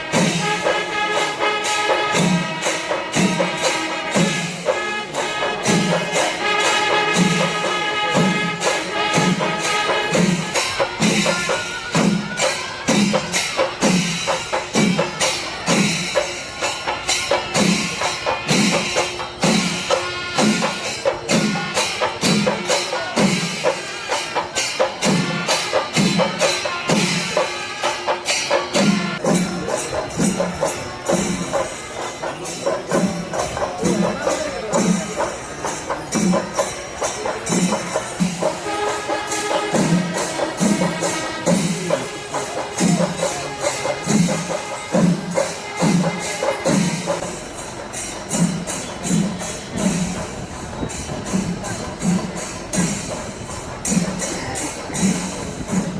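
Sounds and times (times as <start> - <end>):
small hand cymbals clashing: 0.0 - 55.9
held horn notes: 0.1 - 12.5, 23.4 - 55.8.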